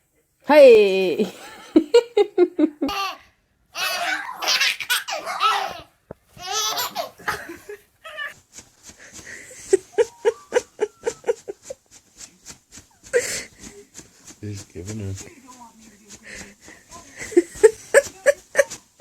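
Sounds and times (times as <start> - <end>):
baby laughing: 2.8 - 8.4.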